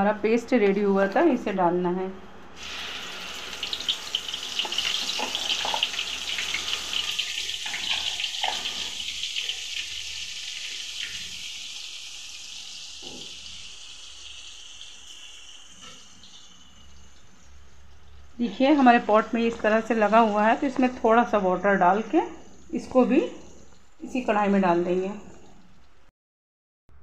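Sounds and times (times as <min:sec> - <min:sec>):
paste sizzling in hot oil: 0:02.6 - 0:17.6.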